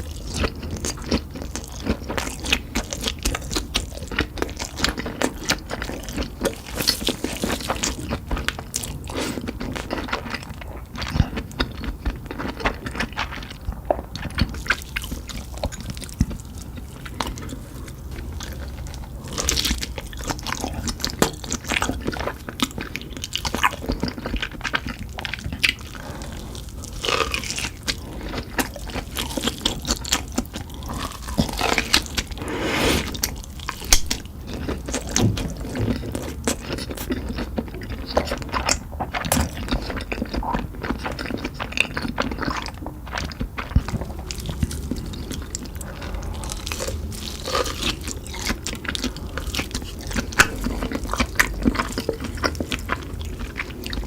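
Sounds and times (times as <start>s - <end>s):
crunchy food chewing: 0.0s - 54.0s.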